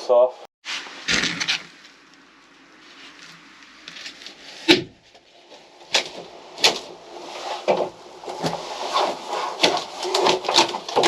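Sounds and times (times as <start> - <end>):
scraping: 0.6 - 11.0
sharp knocks and cracks: 1.0 - 2.1, 3.8 - 7.0, 7.6 - 11.0.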